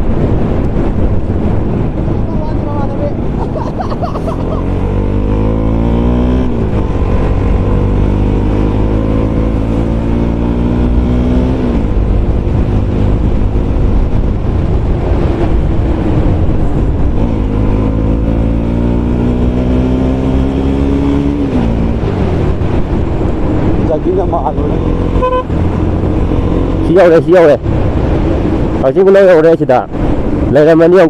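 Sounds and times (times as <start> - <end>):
motorcycle engine revving: 4.0 - 30.4.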